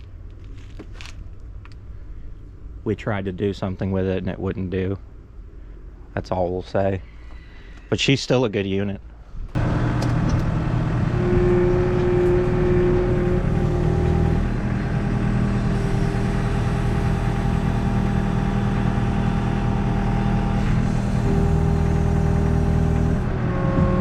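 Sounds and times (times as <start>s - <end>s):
vehicle engine running: 9.6s - 24.0s.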